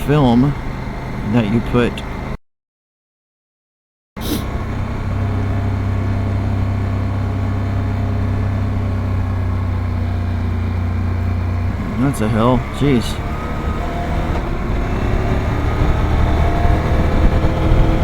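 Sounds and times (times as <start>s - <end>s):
motorcycle engine cruising: 4.2s - 18.0s
wind noise on microphone: 15.6s - 18.0s.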